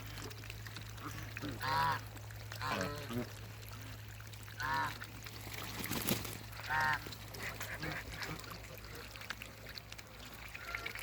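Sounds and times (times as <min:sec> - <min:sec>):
waterbird honking: 0:01.6 - 0:02.0, 0:04.6 - 0:04.9, 0:06.6 - 0:08.4.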